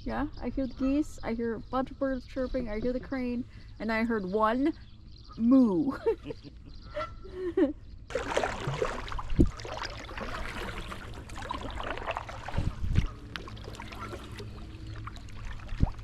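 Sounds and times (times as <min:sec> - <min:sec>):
paddle splashing in water: 0:08.1 - 0:16.0
water dripping: 0:08.1 - 0:16.0.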